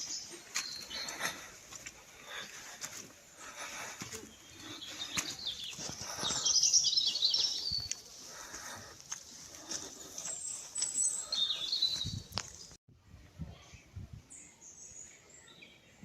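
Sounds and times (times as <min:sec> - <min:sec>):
faint outdoor background noise: 0:00.0 - 0:16.0
songbird twittering: 0:10.3 - 0:12.8.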